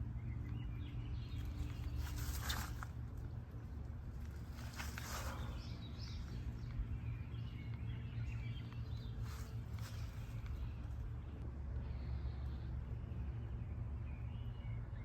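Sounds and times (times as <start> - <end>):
small birds chirping: 0.0 - 15.0
steady low rumble: 0.0 - 15.0
soft rustling swishes: 1.4 - 3.3, 4.2 - 5.6.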